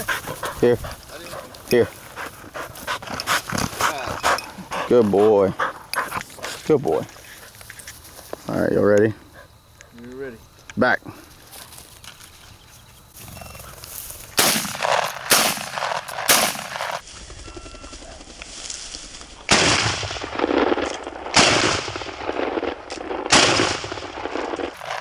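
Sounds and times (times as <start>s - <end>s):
shotgun shots with echo: 14.4s - 17.0s.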